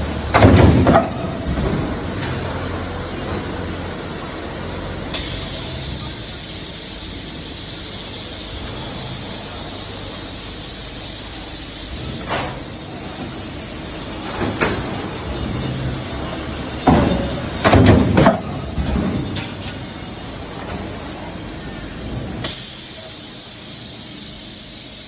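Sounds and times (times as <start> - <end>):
production line machinery humming: 0.0 - 25.0
loud hiss: 5.1 - 12.3.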